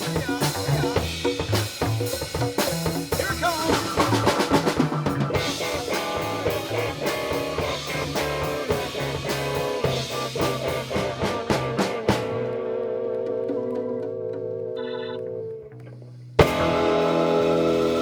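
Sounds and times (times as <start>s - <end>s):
live funk band: 0.0s - 12.6s, 16.4s - 18.0s
bass line: 0.0s - 18.0s
guitar: 0.0s - 18.0s
drum kit quick hits: 16.4s - 18.0s.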